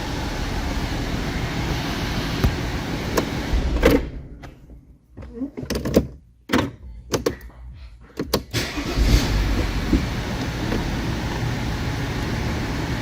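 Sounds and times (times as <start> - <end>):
car engine starting and running: 0.0 - 4.3, 8.4 - 13.0.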